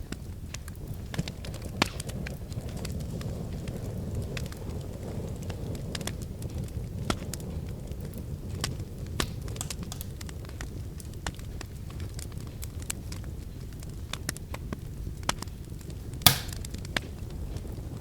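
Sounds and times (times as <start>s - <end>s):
low rumble of flames: 0.0s - 18.0s
wood fire crackling: 0.2s - 15.3s, 16.2s - 17.9s
sharp snaps and pops: 8.6s - 10.2s, 16.3s - 17.0s.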